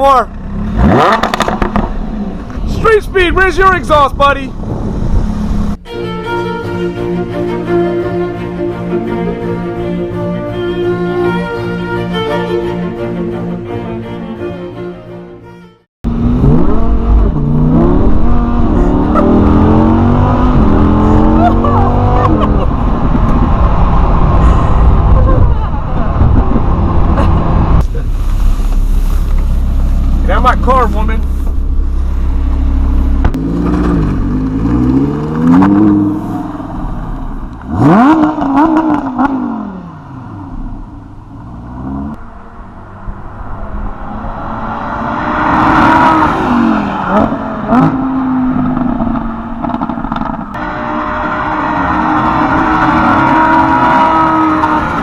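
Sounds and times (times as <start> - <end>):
sports car engine revving: 0.3 - 2.5, 16.1 - 25.0, 26.6 - 55.0
exhaust pops: 0.8 - 2.7, 26.2 - 36.1
orchestral string music: 5.8 - 15.9.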